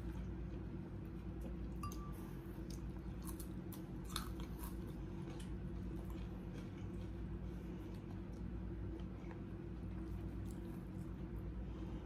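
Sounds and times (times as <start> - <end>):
chewing: 1.4 - 11.5.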